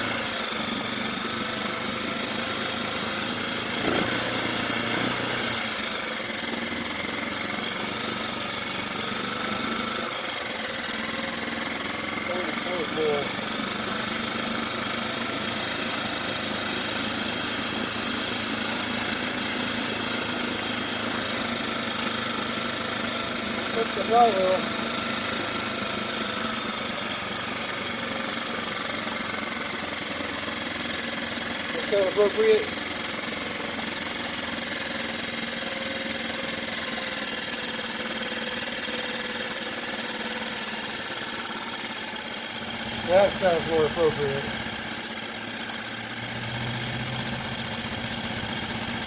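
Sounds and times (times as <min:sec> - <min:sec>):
outboard motor idling: 0:00.0 - 0:49.0.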